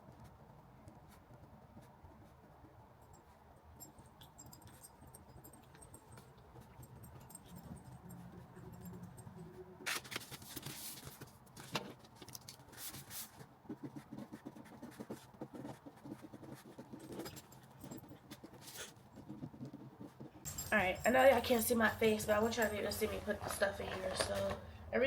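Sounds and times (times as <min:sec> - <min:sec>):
paper crinkling and rustling: 0:09.8 - 0:13.5, 0:21.4 - 0:24.7.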